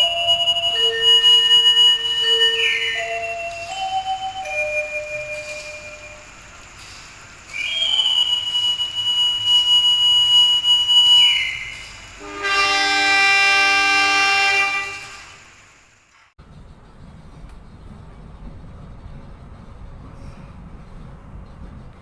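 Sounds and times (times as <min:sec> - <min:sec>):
long high whistle blast: 0:00.0 - 0:15.8
train horn blast: 0:09.4 - 0:15.6.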